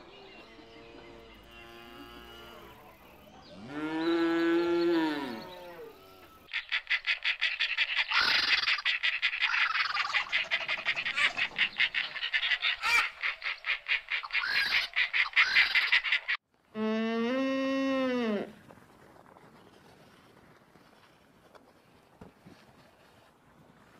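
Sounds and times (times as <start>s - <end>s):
cow mooing: 1.1s - 2.9s, 3.6s - 6.4s.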